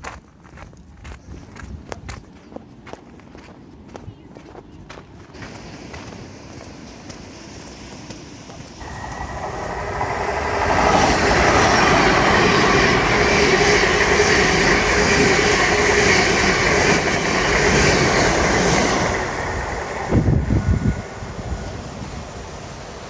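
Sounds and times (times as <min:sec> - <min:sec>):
train passing with rushing rumble: 0:05.1 - 0:23.0.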